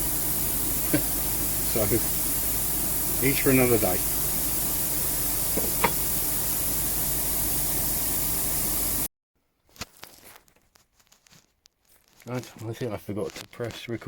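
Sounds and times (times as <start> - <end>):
steady hiss: 0.0 - 9.1.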